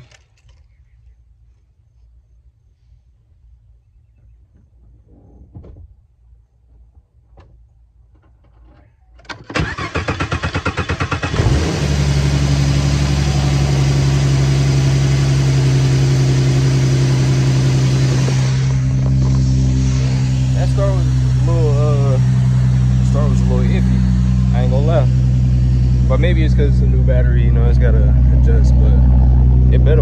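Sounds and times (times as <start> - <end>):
starter motor cranking: 9.3 - 14.0
car engine idling: 9.6 - 30.0.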